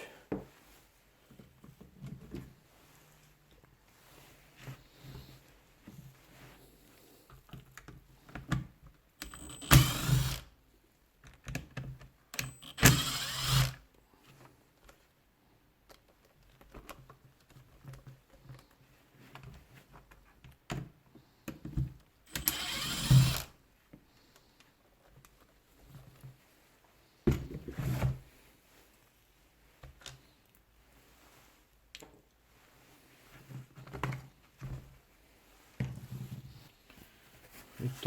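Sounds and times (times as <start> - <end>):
electric screwdriver whirring: 9.2 - 10.5, 12.4 - 13.8, 22.3 - 23.5.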